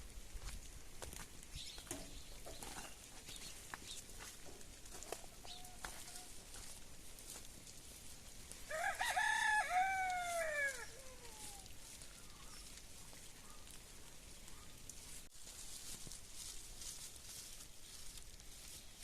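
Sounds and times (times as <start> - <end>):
rooster crowing: 5.0 - 6.4, 8.7 - 11.7.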